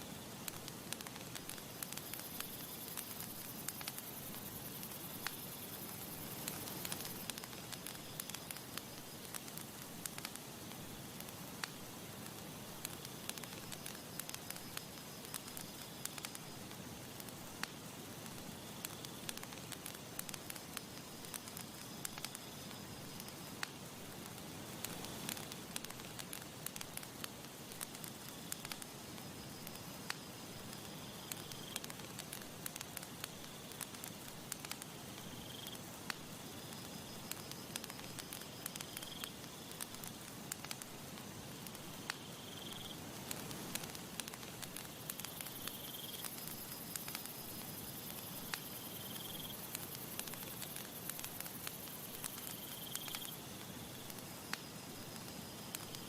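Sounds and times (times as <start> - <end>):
campfire crackling and popping: 0.0 - 56.0
soft hiss: 0.0 - 56.0.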